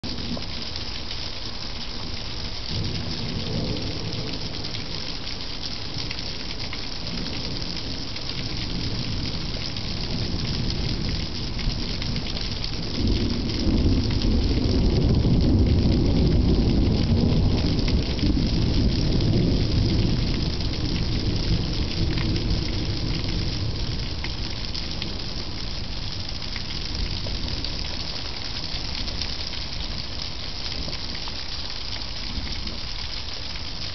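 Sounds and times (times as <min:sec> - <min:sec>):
steady rain hissing: 0:00.0 - 0:33.9
rumble of thunder: 0:02.7 - 0:05.2, 0:05.9 - 0:29.3.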